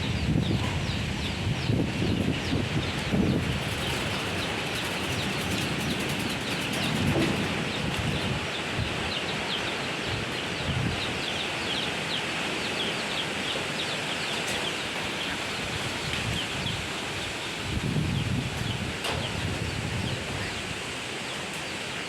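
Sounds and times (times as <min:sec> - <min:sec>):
wind rustling foliage: 0:00.0 - 0:22.0.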